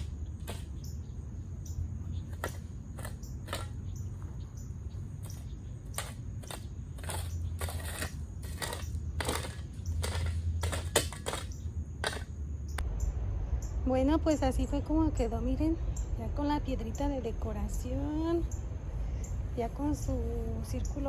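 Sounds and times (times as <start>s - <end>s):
low rumble: 12.7s - 21.0s.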